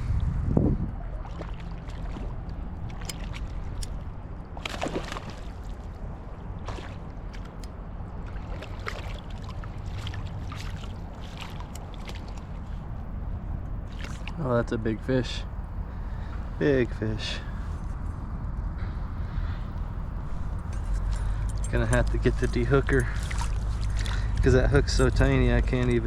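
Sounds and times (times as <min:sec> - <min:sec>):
fish splashing at water surface: 0:01.2 - 0:05.7, 0:06.6 - 0:07.6, 0:13.9 - 0:14.4.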